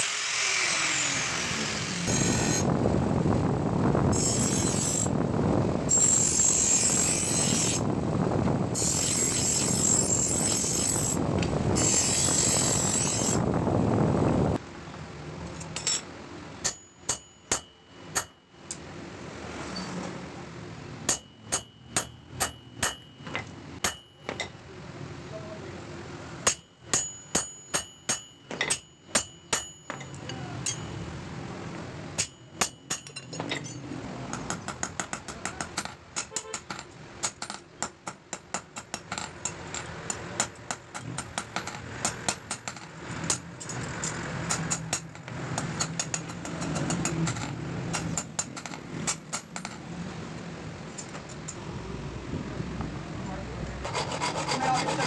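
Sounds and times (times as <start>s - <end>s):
hammer striking steel on anvil: 15.8s - 18.8s, 21.0s - 24.6s, 26.4s - 31.0s, 32.2s - 43.8s.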